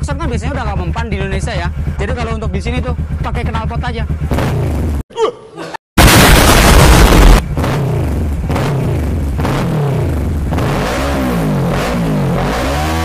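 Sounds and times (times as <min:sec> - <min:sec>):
motorcycle engine revving: 0:00.0 - 0:05.0, 0:07.0 - 0:13.0
explosion boom: 0:06.0 - 0:08.8.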